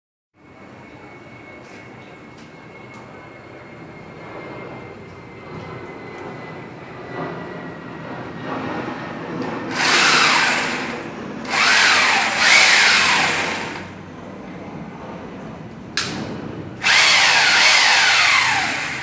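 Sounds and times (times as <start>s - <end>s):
hammer drill running: 9.7s - 14.0s, 16.8s - 19.0s.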